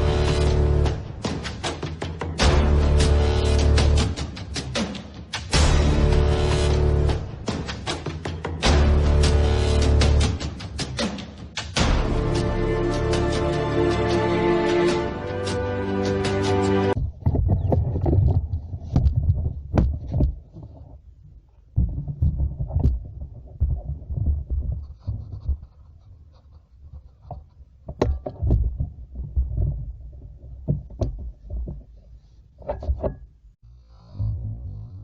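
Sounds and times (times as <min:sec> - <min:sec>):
background music: 0:00.0 - 0:17.0
low rumbling and thumping: 0:17.0 - 0:25.8
sharp clicks and knocks: 0:27.0 - 0:33.4.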